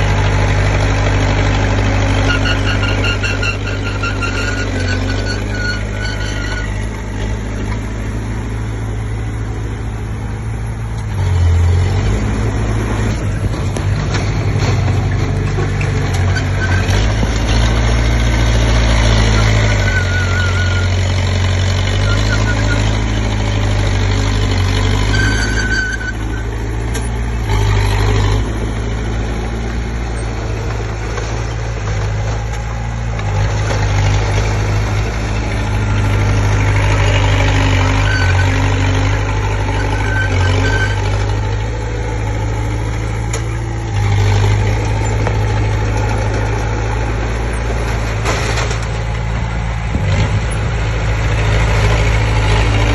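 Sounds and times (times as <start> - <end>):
bulldozer diesel engine under load: 0.0 - 52.9
high squeals: 2.0 - 7.0, 19.0 - 21.2, 21.9 - 23.0, 24.9 - 28.1, 35.7 - 41.6.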